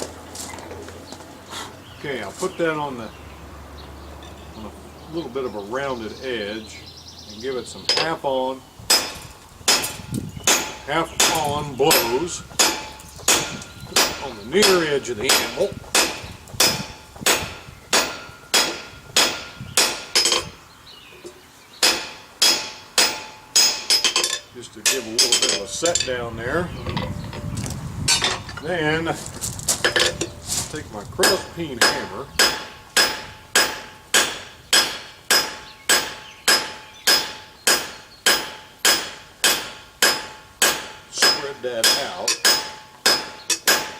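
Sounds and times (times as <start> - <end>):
hammer striking steel on anvil: 8.9 - 20.5, 21.8 - 26.1, 31.2 - 43.9.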